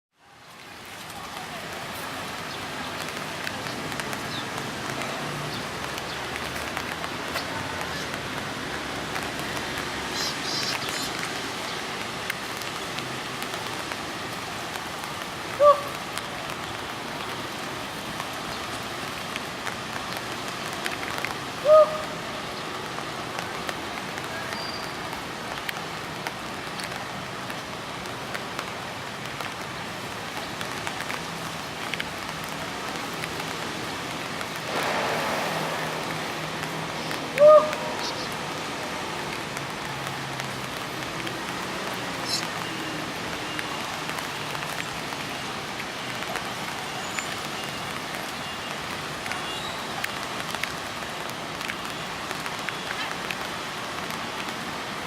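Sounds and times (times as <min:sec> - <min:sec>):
steady hiss: 0:34.5 - 0:37.1
bird call notes: 0:37.0 - 0:38.4.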